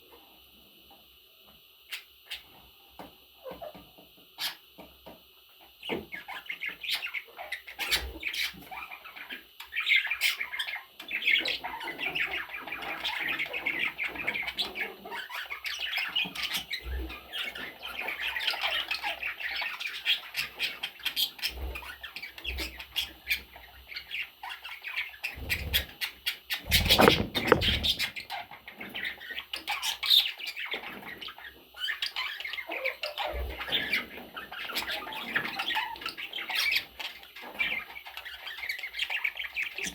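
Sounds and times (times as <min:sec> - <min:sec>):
budgerigars chattering and squawking: 0:22.9 - 0:39.9
rustling thump: 0:26.7 - 0:28.1.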